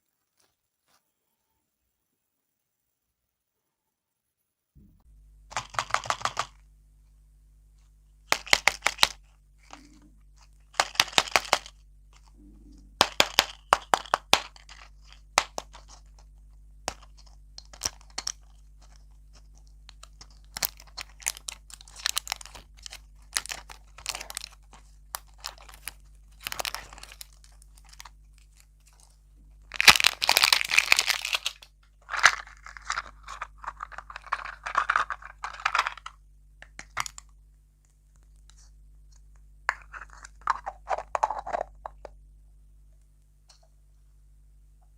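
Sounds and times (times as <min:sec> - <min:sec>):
candy crunching being chewed: 0:08.3 - 0:37.3.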